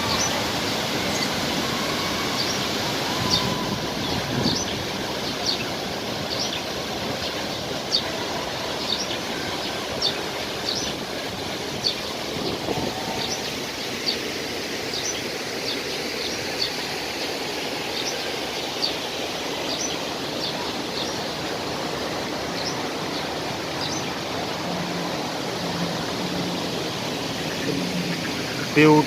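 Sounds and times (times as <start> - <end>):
waterfall rushing: 0.0 - 29.0
bird chirping: 22.5 - 26.6, 27.2 - 29.0.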